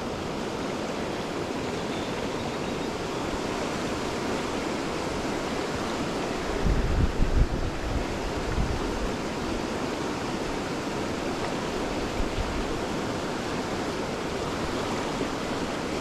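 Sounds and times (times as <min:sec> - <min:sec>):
river water rushing: 0:00.0 - 0:16.0
wind buffeting microphone: 0:06.0 - 0:09.7.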